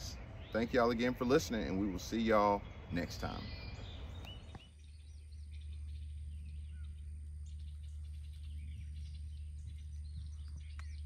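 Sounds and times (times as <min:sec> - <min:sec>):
birds chirping and singing: 0:00.0 - 0:11.0
steady low rumble: 0:00.0 - 0:11.0.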